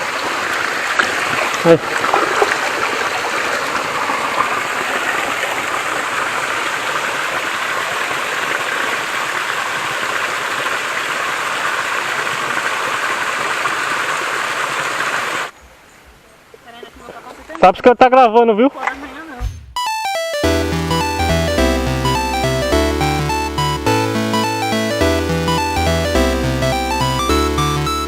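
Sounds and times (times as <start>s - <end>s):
waterfall rushing: 0.0s - 13.2s.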